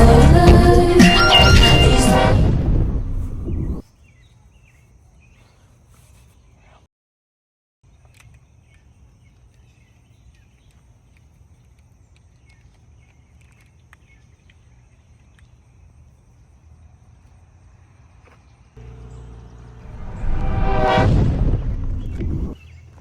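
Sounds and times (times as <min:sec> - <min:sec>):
steady low rumble: 0:00.0 - 0:03.8, 0:18.8 - 0:22.6
thin high tone: 0:00.7 - 0:02.5
faint small ticks: 0:08.0 - 0:15.7.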